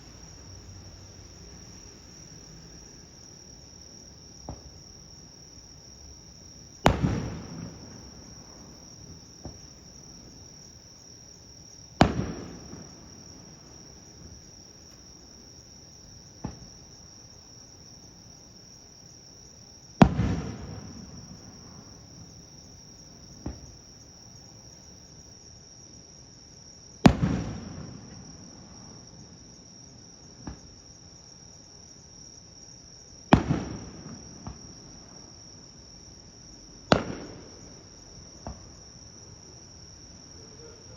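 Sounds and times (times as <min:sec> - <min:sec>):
insects droning: 0:00.0 - 0:40.9
faint firework pop: 0:04.4 - 0:04.8, 0:12.0 - 0:13.0, 0:16.4 - 0:16.8, 0:20.0 - 0:21.0, 0:23.4 - 0:23.8, 0:27.0 - 0:28.3, 0:30.4 - 0:30.7, 0:33.3 - 0:34.7, 0:36.9 - 0:37.6, 0:38.4 - 0:38.7
firework bangs echoing: 0:06.7 - 0:10.5, 0:12.0 - 0:14.6, 0:16.4 - 0:16.8, 0:20.0 - 0:22.4, 0:27.0 - 0:28.1, 0:33.3 - 0:34.6, 0:36.9 - 0:37.6.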